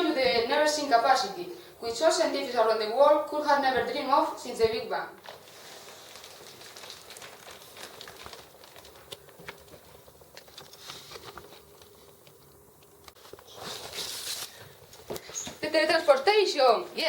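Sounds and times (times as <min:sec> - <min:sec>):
rustling and handling noise: 0:05.2 - 0:17.0.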